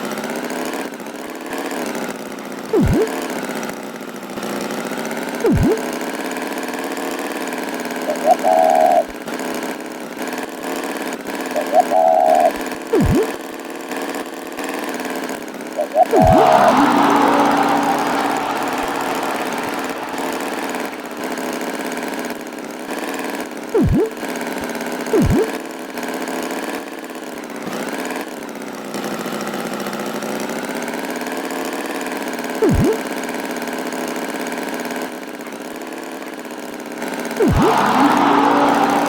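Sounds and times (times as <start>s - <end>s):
cartoon tractor engine running: 2.6s - 3.3s, 5.4s - 6.1s, 8.0s - 9.1s, 11.5s - 13.4s, 15.8s - 22.2s, 23.7s - 24.3s, 25.1s - 25.6s, 32.6s - 33.2s, 37.4s - 39.0s
swooping cartoon effects: 2.7s - 3.2s, 5.4s - 5.9s, 8.1s - 9.1s, 11.6s - 13.4s, 15.8s - 21.9s, 23.8s - 24.2s, 25.1s - 25.6s, 32.6s - 33.0s, 37.4s - 39.0s.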